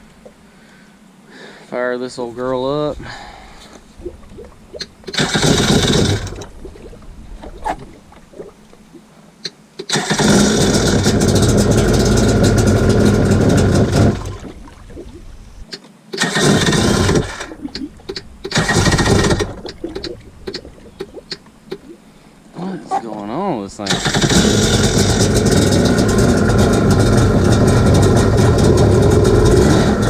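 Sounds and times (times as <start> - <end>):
two-stroke engine starting: 5.1 - 6.5, 9.8 - 14.5, 16.1 - 20.1, 23.8 - 30.0.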